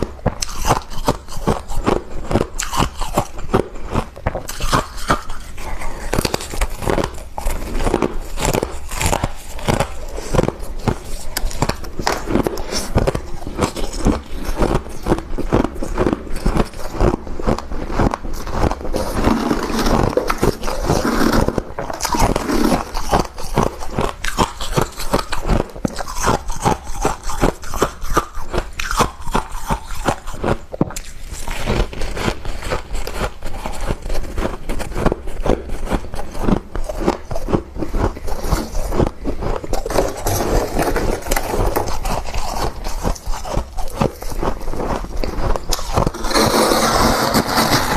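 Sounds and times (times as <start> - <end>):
frost crunching being chewed: 0.0 - 47.9.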